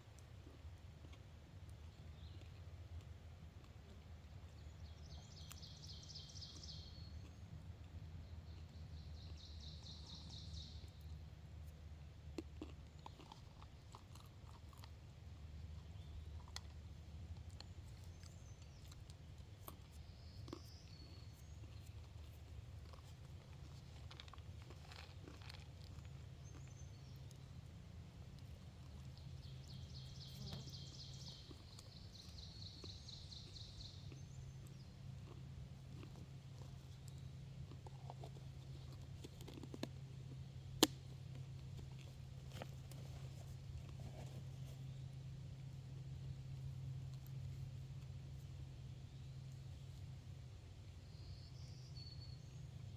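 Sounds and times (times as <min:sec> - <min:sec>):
faint rustles and ticks: 0:00.0 - 0:51.5
faint bird chirp: 0:04.5 - 0:07.5, 0:28.5 - 0:35.4, 0:51.0 - 0:52.9.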